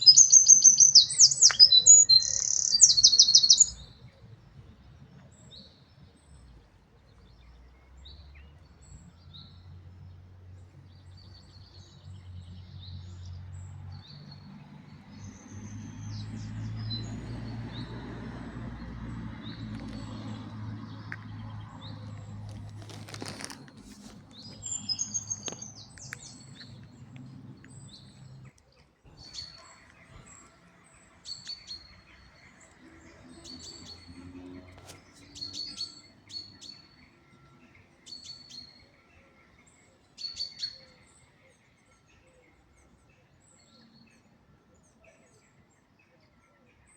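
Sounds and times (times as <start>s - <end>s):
small birds chirping: 0.0s - 45.9s
loud rustle: 22.4s - 25.6s.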